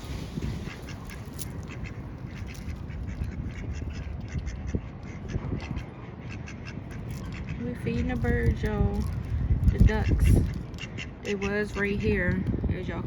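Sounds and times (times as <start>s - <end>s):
ducks quacking: 0.4s - 7.8s, 9.8s - 12.2s.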